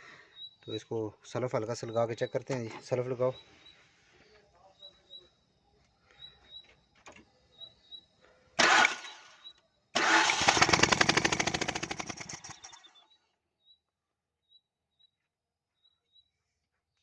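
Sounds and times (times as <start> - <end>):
car engine cranking on starter: 8.6 - 9.3, 10.0 - 12.8.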